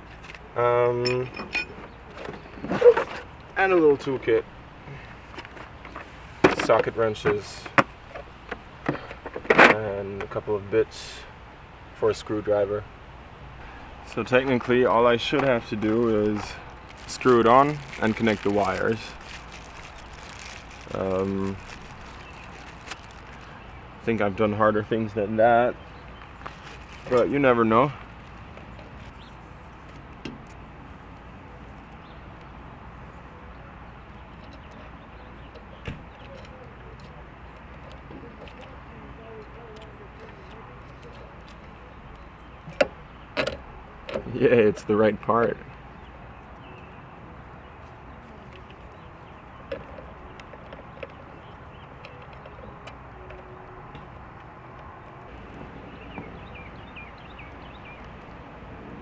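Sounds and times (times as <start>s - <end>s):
open-air background noise: 0.0s - 59.0s
outdoor background noise: 0.0s - 59.0s
bird chirping: 1.0s - 43.4s, 45.6s - 59.0s
light clicks and taps: 33.5s - 44.9s, 47.8s - 55.3s.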